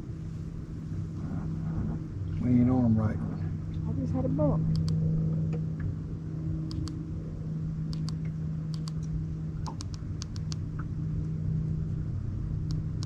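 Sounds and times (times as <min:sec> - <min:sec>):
light clicks: 0:04.7 - 0:05.9, 0:06.7 - 0:07.0, 0:07.9 - 0:10.9, 0:12.6 - 0:13.0.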